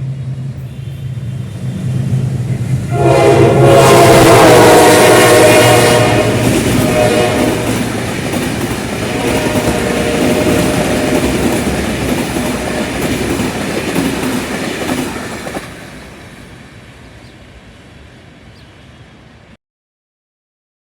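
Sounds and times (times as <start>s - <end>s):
train rumbling past: 0.0s - 19.6s
locomotive horn: 0.6s - 1.7s, 2.9s - 8.0s, 9.0s - 11.8s, 12.4s - 13.1s.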